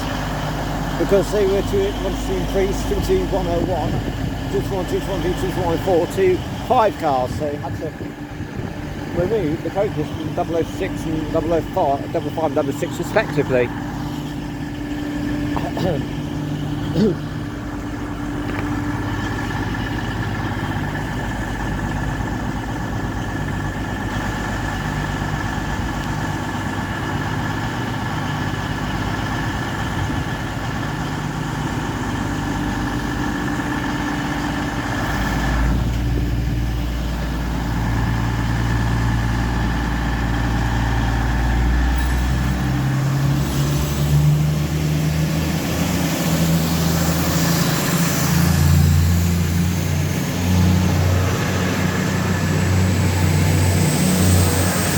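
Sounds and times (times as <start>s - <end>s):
constant whine: 0.0s - 54.9s
deep heavy engine note: 0.0s - 54.9s
diesel train engine humming: 0.0s - 54.9s.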